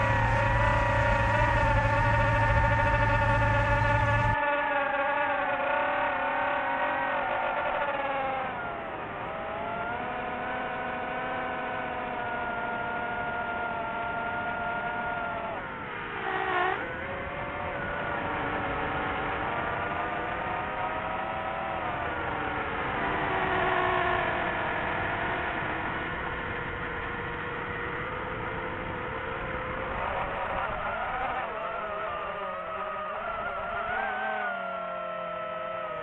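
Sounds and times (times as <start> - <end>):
noisy rush: 0.0 - 4.4, 12.0 - 36.0
motor whine: 0.0 - 4.6.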